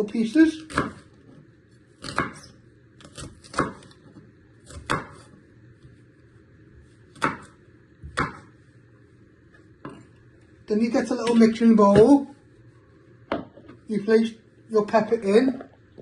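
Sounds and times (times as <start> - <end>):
knife chopping on chopping board: 0.6 - 1.1, 2.0 - 4.0, 4.6 - 5.4, 7.1 - 8.5.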